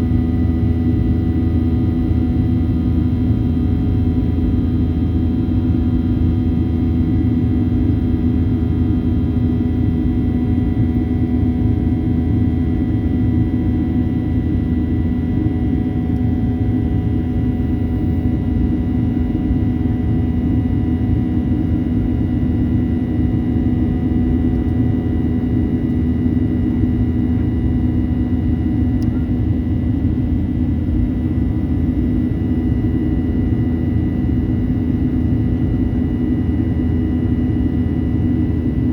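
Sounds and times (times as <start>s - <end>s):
airplane cabin engine drone: 0.0s - 38.9s
constant low hum: 0.0s - 38.9s.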